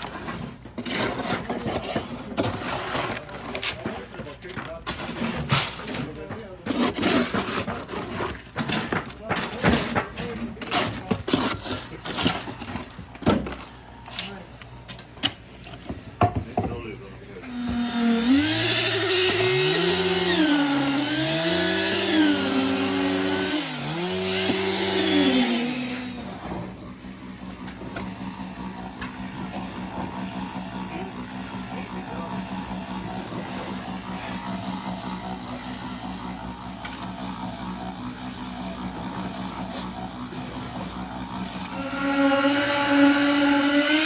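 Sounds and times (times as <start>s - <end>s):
engine revving: 17.5s - 44.0s.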